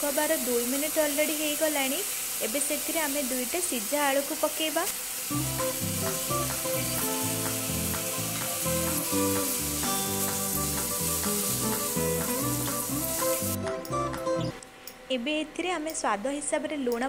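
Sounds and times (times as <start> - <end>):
food sizzling in oil: 0.0 - 14.5
background music with bass: 5.3 - 14.6.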